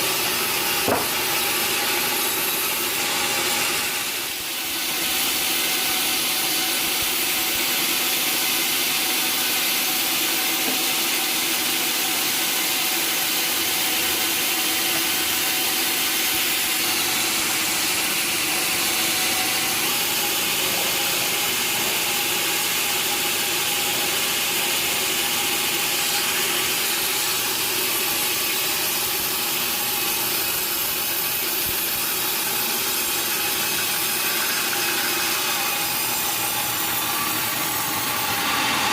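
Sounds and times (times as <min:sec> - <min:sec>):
saw cutting timber: 0:00.0 - 0:38.9
machine humming: 0:13.6 - 0:31.3.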